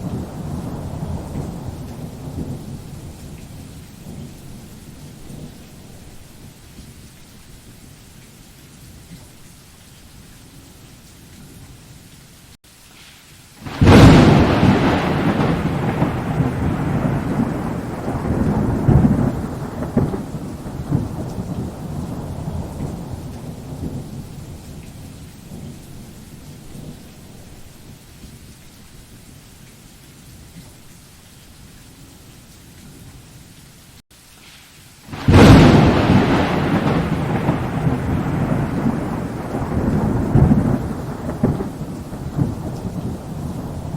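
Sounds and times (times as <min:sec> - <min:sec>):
thunder crack and rumble: 0:00.0 - 0:05.6, 0:13.7 - 0:27.8, 0:35.1 - 0:43.9
faint steady hiss: 0:00.0 - 0:43.9.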